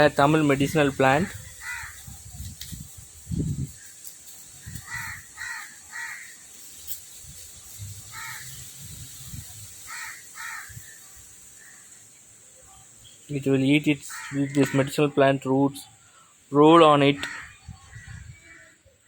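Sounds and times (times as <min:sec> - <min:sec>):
crows cawing: 0:01.2 - 0:02.2, 0:04.6 - 0:06.5, 0:08.1 - 0:08.7, 0:09.8 - 0:12.1, 0:14.0 - 0:15.0, 0:17.2 - 0:18.8.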